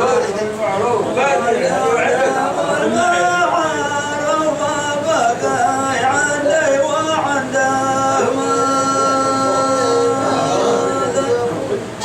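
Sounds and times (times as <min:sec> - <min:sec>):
man singing: 0:01.6 - 0:11.8.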